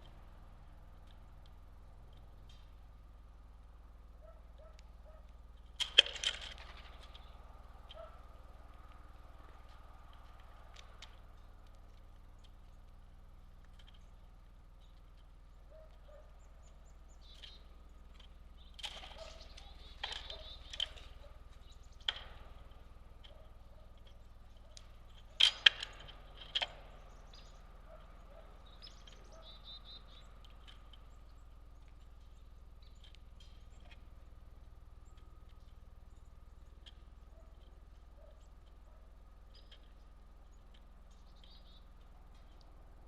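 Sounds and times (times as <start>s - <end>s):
birds tapping and knocking: 5.6s - 13.0s, 13.6s - 38.8s
high bird chirps: 16.2s - 17.9s, 18.6s - 22.1s, 26.8s - 31.6s, 41.1s - 41.9s.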